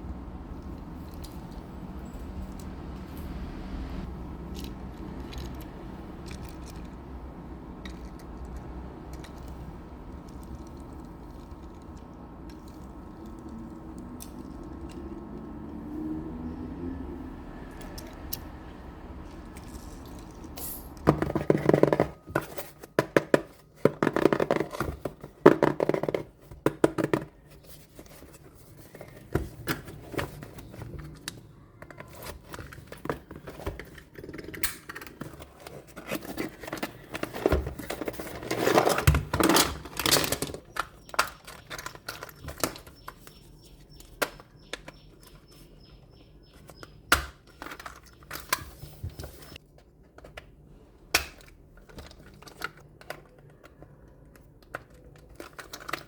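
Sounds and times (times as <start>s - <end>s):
toy trucks clicking and tapping: 4.1s - 15.9s, 17.7s - 50.5s
packaging rustling: 32.3s - 42.8s.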